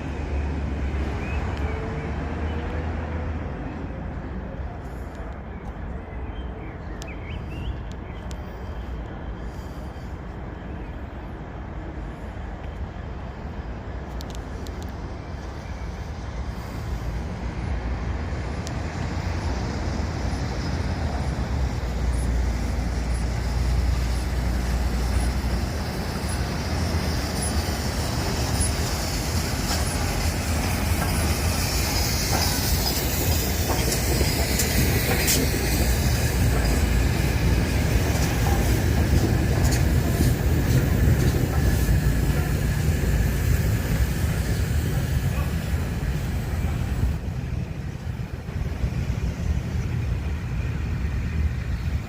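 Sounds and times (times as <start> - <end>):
steam train rumble: 0.0 - 52.0
wheels clicking over rail joints: 21.1 - 48.2.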